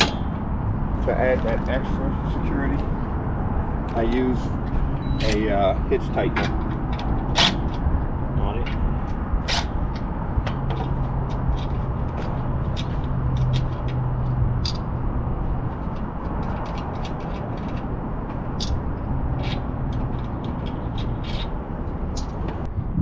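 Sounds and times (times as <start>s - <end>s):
sharp metallic clicks and taps: 8.6s - 15.0s, 15.8s - 22.7s.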